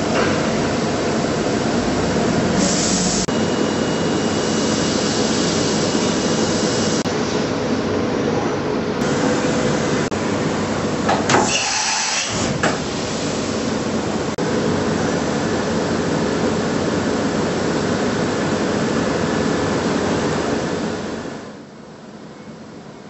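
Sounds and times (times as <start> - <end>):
machining centre running: 0.0 - 23.0
brief loud hiss: 11.4 - 12.5.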